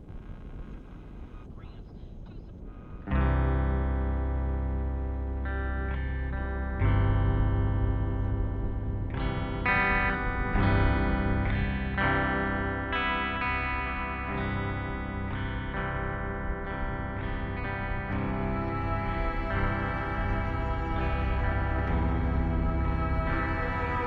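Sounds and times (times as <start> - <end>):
distorted electric guitar chords: 3.0 - 24.0
low drone: 18.0 - 24.0.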